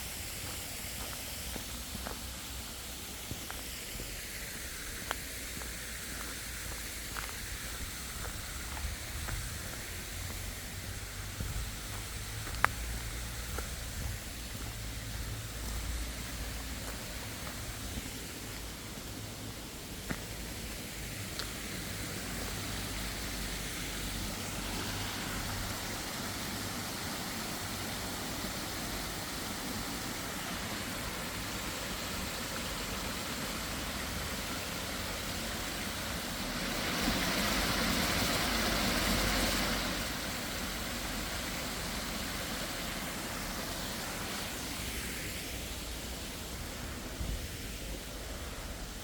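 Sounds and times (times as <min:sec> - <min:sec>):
outdoor hiss: 0:00.0 - 0:49.0
car passing by: 0:08.9 - 0:18.0, 0:21.0 - 0:31.8, 0:32.8 - 0:48.9.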